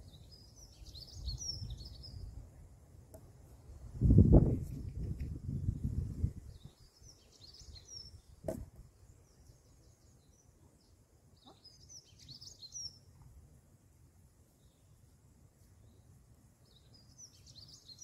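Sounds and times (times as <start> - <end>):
songbird chirping: 0.0 - 2.4, 5.1 - 13.4, 14.5 - 18.0
faint outdoor background noise: 0.0 - 18.0
sharp knock: 8.4 - 8.7.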